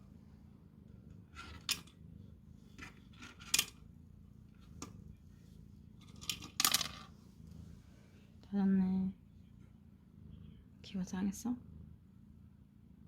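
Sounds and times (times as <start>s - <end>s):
plastic clicks and rattles: 6.1s - 7.0s.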